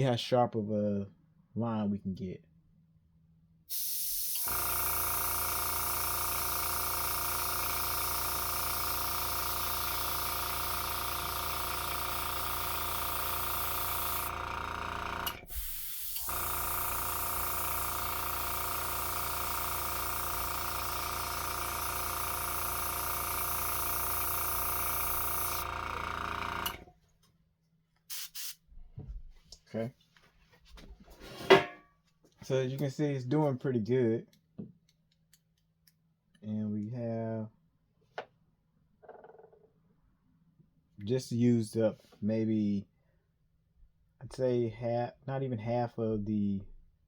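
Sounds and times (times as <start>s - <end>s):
airbrush spraying hiss: 3.7s - 4.9s, 10.8s - 14.3s, 15.5s - 18.0s, 18.7s - 25.6s, 28.1s - 28.6s
compressor humming: 3.7s - 26.9s.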